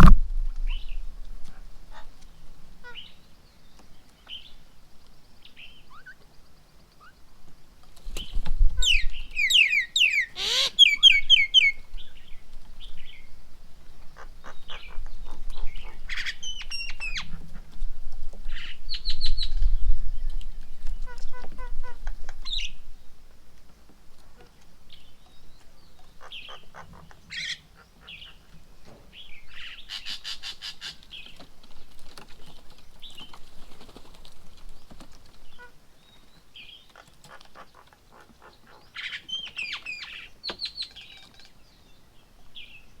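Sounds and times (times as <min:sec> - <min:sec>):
low rumble: 0:00.0 - 0:01.4
birds calling and chirping: 0:00.0 - 0:43.0.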